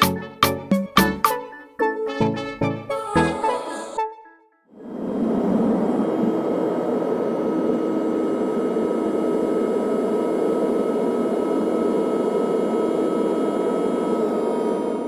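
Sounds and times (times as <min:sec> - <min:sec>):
jet engines droning in cabin: 0:04.8 - 0:15.0
thin steady engine whine: 0:06.0 - 0:15.0.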